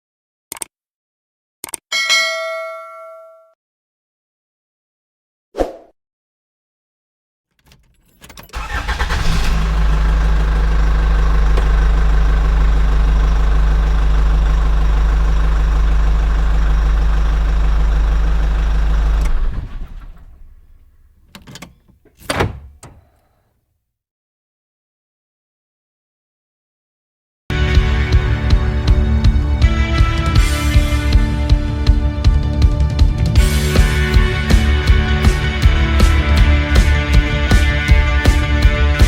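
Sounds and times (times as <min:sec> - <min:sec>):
diesel engine running: 0:08.6 - 0:23.0, 0:27.5 - 0:32.2.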